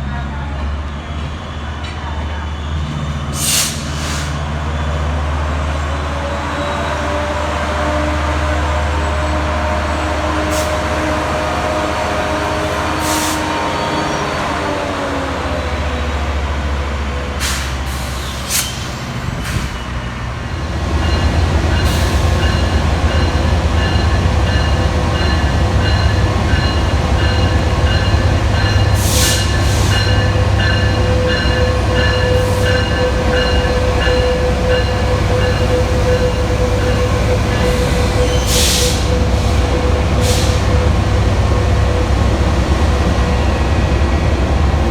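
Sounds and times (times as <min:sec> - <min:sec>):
train low rumble: 0:00.0 - 0:44.9
train whine falling in pitch: 0:20.9 - 0:44.0.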